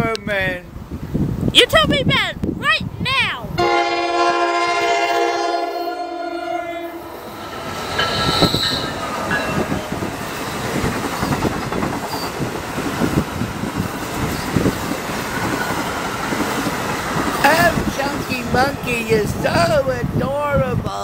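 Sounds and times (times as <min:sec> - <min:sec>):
train horn chord: 0:03.6 - 0:09.9
high wheel squeal: 0:06.4 - 0:11.4
train wheels clattering over rails: 0:07.5 - 0:19.7.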